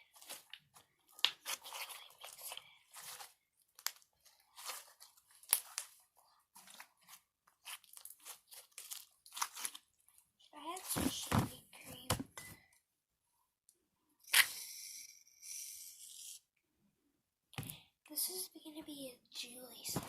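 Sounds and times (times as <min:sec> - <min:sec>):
slime crackling and tearing: 0:00.2 - 0:06.0, 0:06.6 - 0:10.0.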